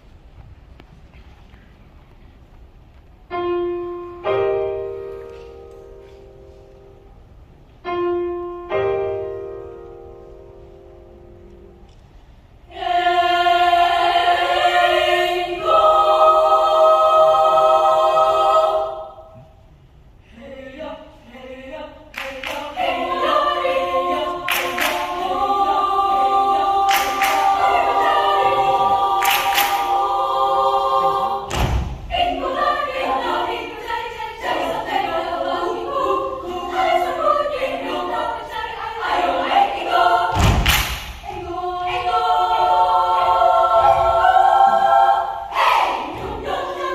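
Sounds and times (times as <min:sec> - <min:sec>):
children's choir singing: 0:12.6 - 0:46.9.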